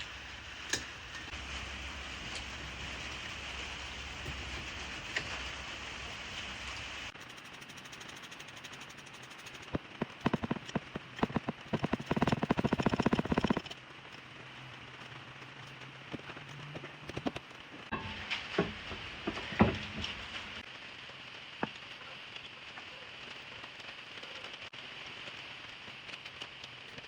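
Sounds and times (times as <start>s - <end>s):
low steady hum: 0.0s - 20.6s.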